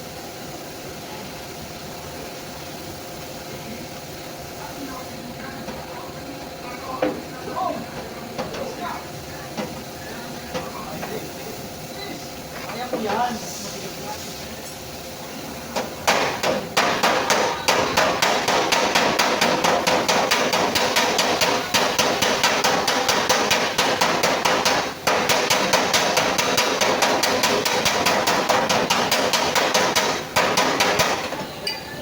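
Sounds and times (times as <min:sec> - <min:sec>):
hammer striking sheet metal: 0:15.8 - 0:31.4.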